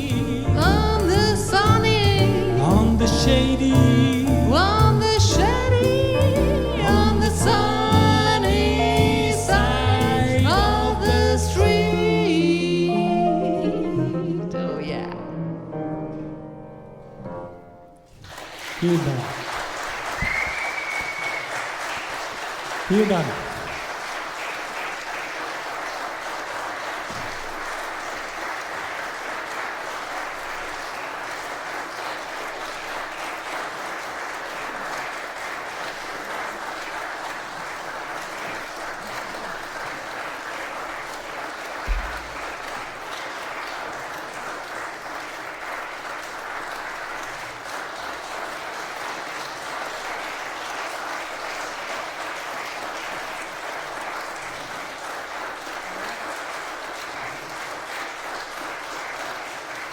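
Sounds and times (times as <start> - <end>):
audience applauding: 18.1 - 59.9.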